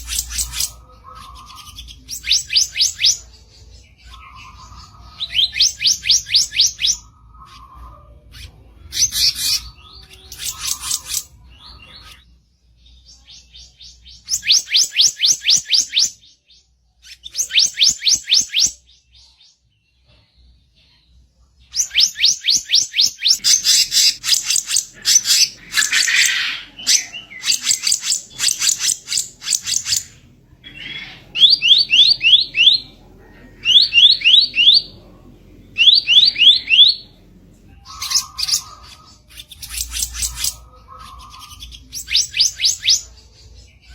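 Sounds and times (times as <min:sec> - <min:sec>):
bird harsh rapid song: 0:00.0 - 0:19.6, 0:21.6 - 0:33.0, 0:35.7 - 0:43.9.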